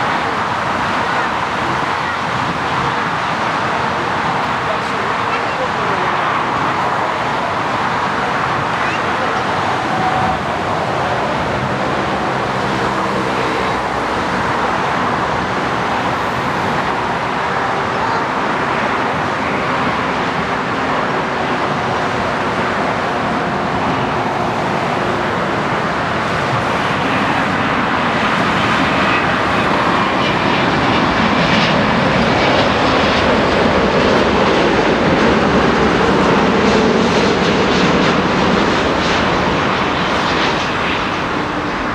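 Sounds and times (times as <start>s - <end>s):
jet engines running: 0.0s - 41.9s.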